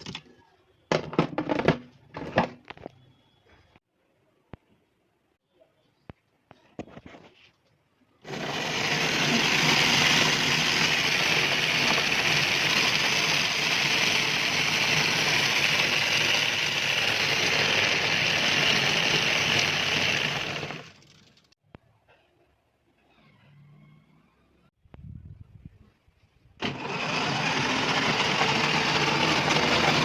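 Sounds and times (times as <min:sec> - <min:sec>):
electric motor whirring: 0:08.3 - 0:21.0, 0:26.6 - 0:30.0.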